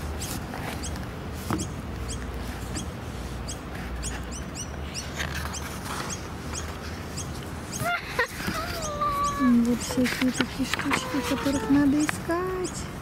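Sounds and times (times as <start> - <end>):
book pages rustling: 0.0 - 1.6, 5.0 - 7.6
small birds chirping: 0.0 - 13.0.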